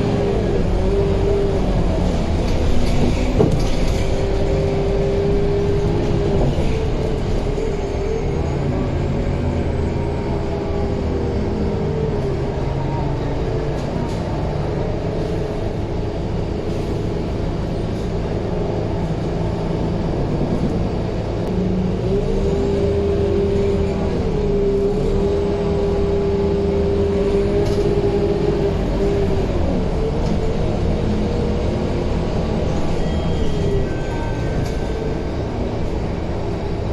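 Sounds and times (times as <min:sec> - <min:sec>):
bus diesel engine running: 0:00.0 - 0:36.9.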